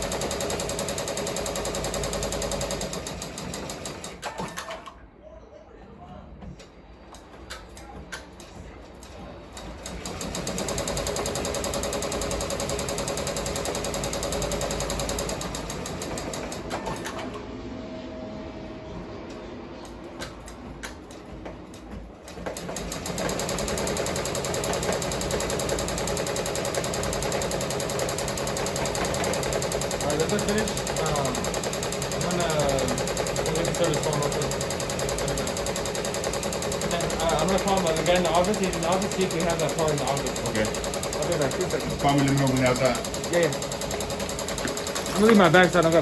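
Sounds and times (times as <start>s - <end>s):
embroidery machine stitching: 0.0s - 4.8s, 9.6s - 17.3s, 22.3s - 46.0s.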